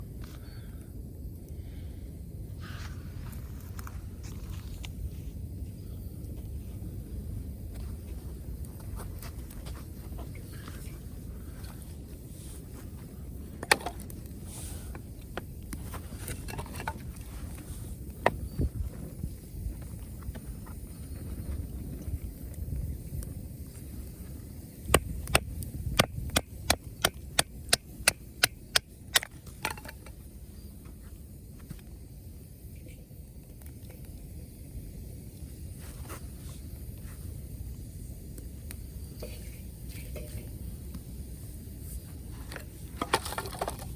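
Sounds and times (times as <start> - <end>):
campfire crackling and popping: 13.1 - 30.4, 31.5 - 35.8, 36.6 - 43.9
wood being chopped: 24.9 - 28.9.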